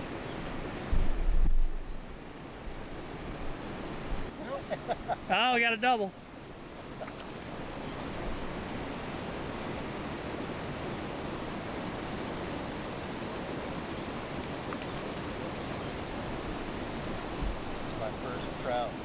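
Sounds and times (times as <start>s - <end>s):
rushing outdoor noise: 0.0s - 19.0s.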